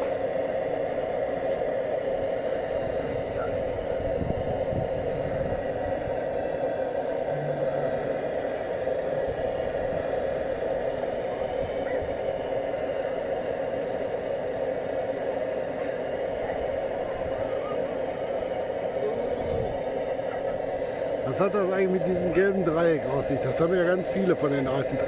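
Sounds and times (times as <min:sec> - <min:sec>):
blowtorch roaring: 0:00.0 - 0:25.0.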